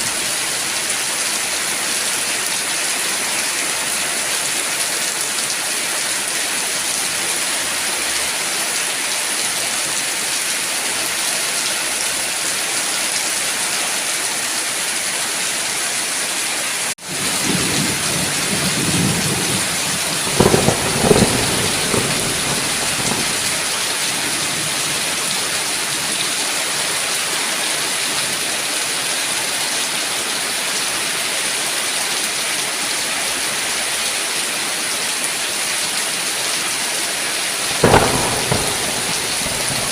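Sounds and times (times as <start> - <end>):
heavy rain hissing: 16.5 - 31.1, 36.2 - 39.9
thunder rumbling and cracking: 17.1 - 25.4, 37.7 - 39.9.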